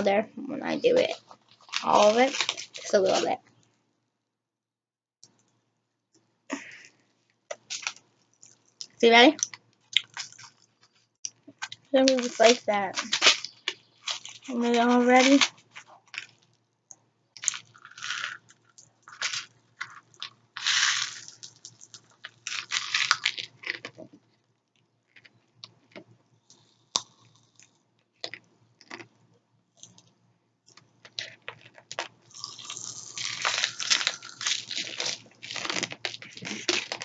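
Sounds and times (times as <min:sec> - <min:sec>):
popping candy crackling in mouth: 0:01.0 - 0:03.4, 0:07.5 - 0:16.6, 0:17.4 - 0:24.2, 0:25.1 - 0:29.1, 0:30.7 - 0:37.0.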